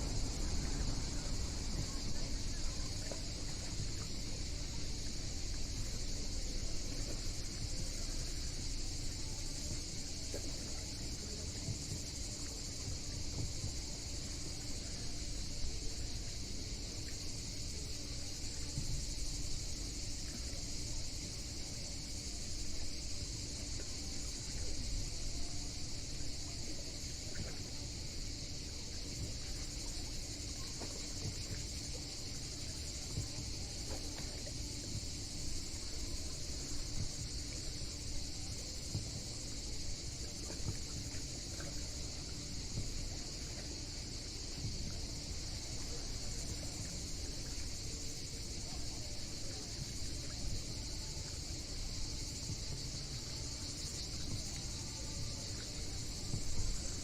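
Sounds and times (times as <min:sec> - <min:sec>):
insects chorus: 0:00.0 - 0:57.0
low continuous rumble: 0:00.0 - 0:57.0.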